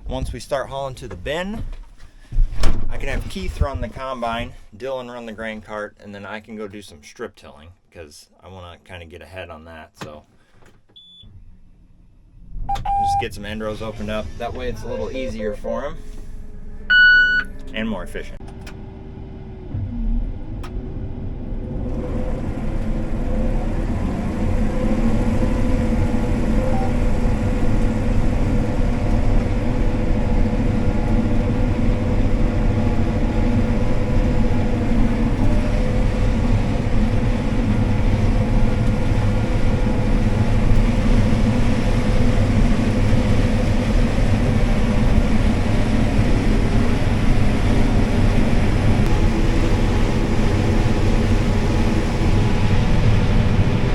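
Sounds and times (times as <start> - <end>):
combine harvester engine drone: 12.7 - 53.9.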